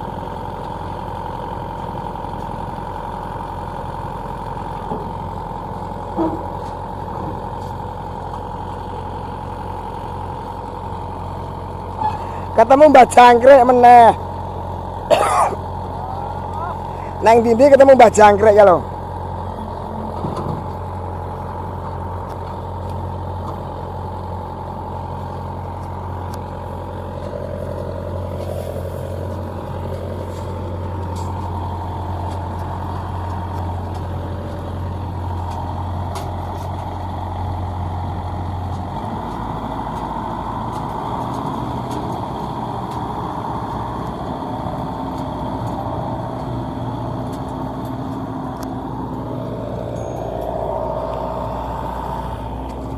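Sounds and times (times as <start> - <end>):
combine harvester engines humming: 0.0 - 52.9
machine whine: 45.2 - 52.9.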